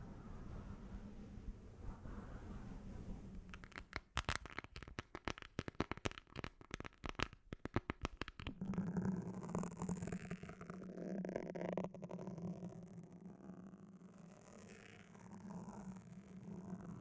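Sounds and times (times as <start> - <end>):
steady low hum: 0.0 - 3.5.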